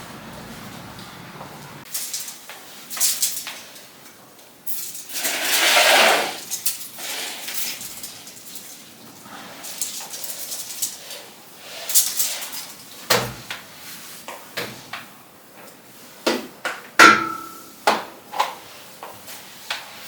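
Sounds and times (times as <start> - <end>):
objects knocking and clattering: 16.7 - 18.6
dish or glass clink: 17.0 - 17.8.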